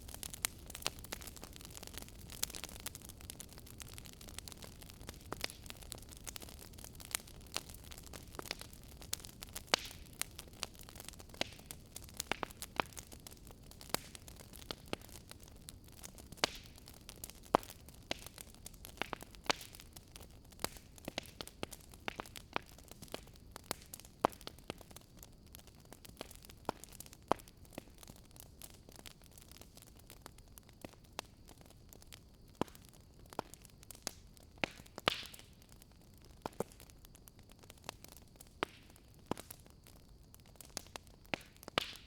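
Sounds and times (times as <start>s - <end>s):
wood fire crackling: 0.0s - 42.0s.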